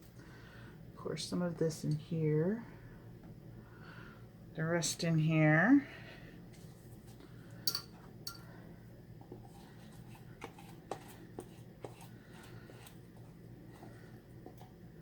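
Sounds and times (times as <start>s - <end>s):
batter being scraped: 9.3s - 14.0s.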